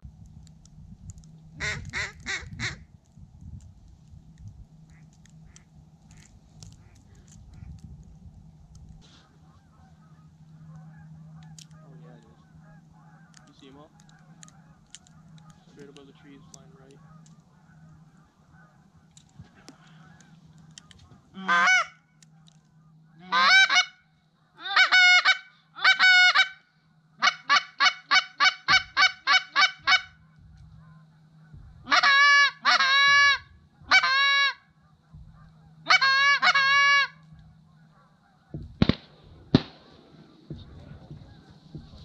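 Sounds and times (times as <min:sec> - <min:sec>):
duck call honking quacks: 0:01.6 - 0:02.8, 0:09.2 - 0:18.9, 0:21.3 - 0:22.0, 0:23.1 - 0:24.0, 0:24.6 - 0:26.6, 0:27.2 - 0:38.6, 0:40.6 - 0:42.0.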